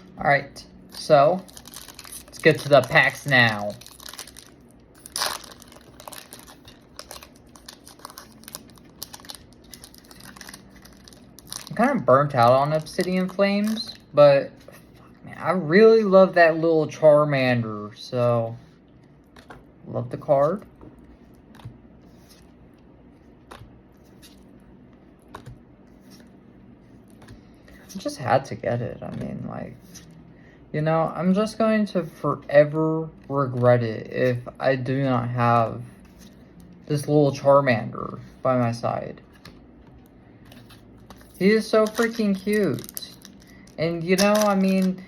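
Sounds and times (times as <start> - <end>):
low room hum: 0.0 - 45.0
foil wrapper crinkling: 0.9 - 14.1, 40.8 - 45.0.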